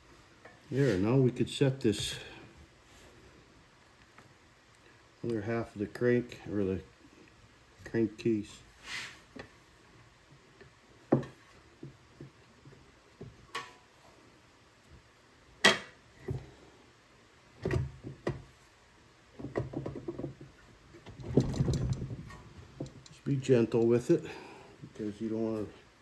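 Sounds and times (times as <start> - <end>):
light rattling: 19.4 - 24.6
metal parts knocking and clinking: 21.1 - 24.0.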